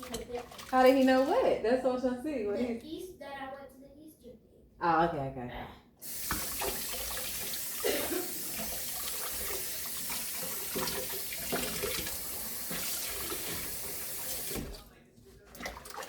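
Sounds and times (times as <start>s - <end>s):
tap water running: 0.0s - 1.6s, 6.0s - 14.9s, 15.5s - 16.0s.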